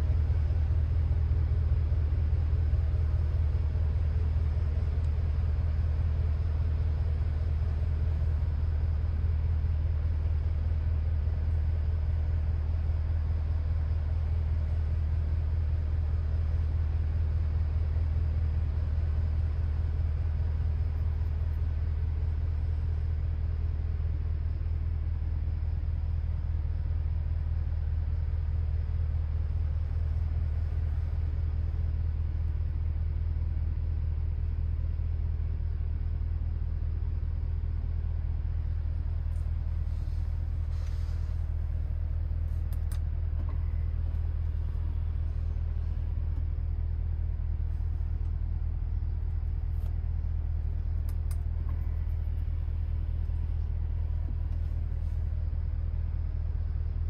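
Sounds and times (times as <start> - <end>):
car engine idling low rumble: 0.0 - 57.0.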